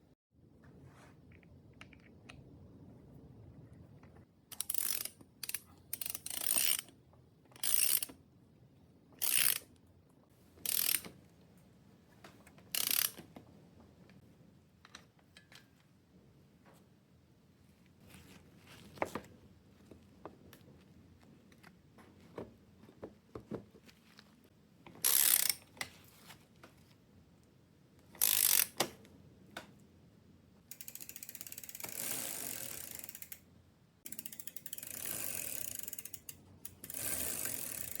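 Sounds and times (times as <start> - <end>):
fast ratchet clicking: 4.5 - 6.9, 7.6 - 8.1, 9.2 - 9.6, 10.7 - 11.0, 12.8 - 13.2, 25.0 - 25.6, 28.2 - 28.8, 34.1 - 38.0
small metallic clicks and knocks: 14.8 - 15.9.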